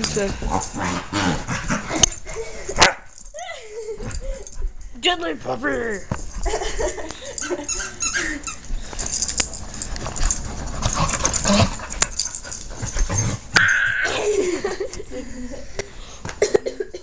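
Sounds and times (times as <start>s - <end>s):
high dog whine: 7.3s - 14.2s
puppy whimpers and yips: 7.5s - 8.7s.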